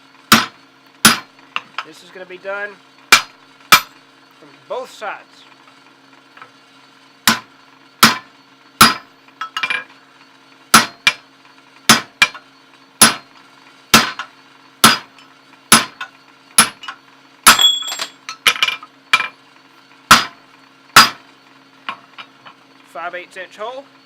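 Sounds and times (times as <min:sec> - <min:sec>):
hammer striking steel: 0:00.3 - 0:01.3, 0:03.1 - 0:04.0, 0:07.3 - 0:09.8, 0:10.7 - 0:11.2, 0:11.9 - 0:12.4, 0:13.0 - 0:13.2, 0:13.9 - 0:15.1, 0:15.7 - 0:19.3, 0:20.1 - 0:20.4, 0:21.0 - 0:21.2
light ringing metal clinks: 0:17.5 - 0:18.4.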